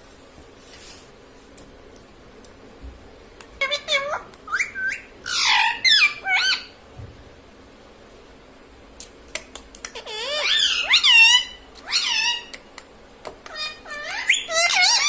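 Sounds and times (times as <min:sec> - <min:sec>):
parrot squawking: 0:03.6 - 0:06.8, 0:09.9 - 0:12.6, 0:13.5 - 0:15.0.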